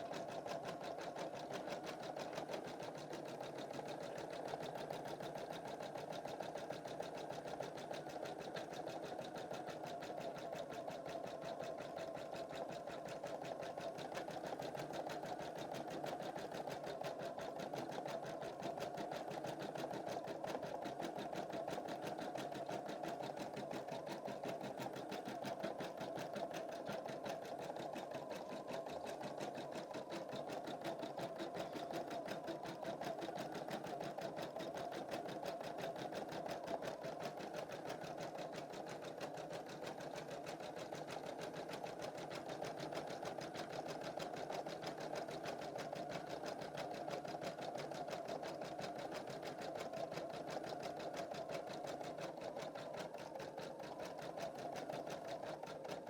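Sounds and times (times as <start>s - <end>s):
embroidery machine stitching: 13.8s - 56.0s.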